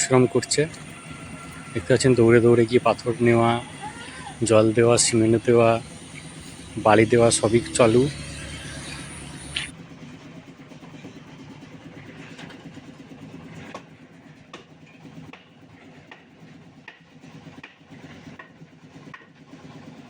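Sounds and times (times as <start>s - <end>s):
engine idling: 0.0s - 10.8s.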